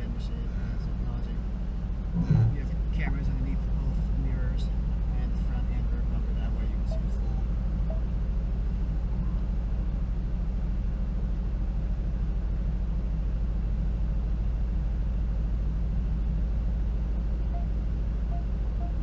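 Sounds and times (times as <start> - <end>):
road noise: 0.0 - 14.6
car engine rumble: 0.0 - 19.0.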